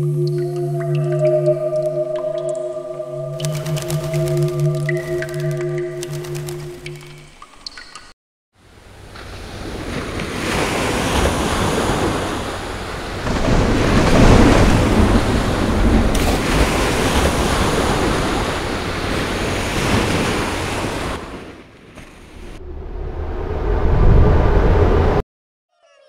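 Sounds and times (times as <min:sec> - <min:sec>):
crashing sea waves: 0:08.9 - 0:25.2
deep rumble: 0:22.4 - 0:25.2.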